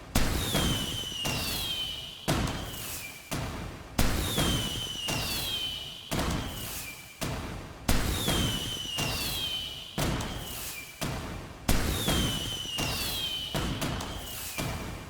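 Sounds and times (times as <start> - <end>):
falling firework whistle: 0.2 - 3.3, 4.0 - 7.2, 8.1 - 10.9, 11.8 - 15.0.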